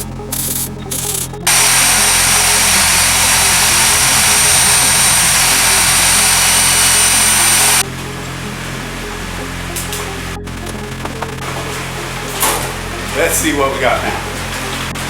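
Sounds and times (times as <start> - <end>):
angle grinder grinding metal: 0.0 - 7.8
electrical hum: 0.0 - 15.0
short noisy bursts: 1.5 - 7.8.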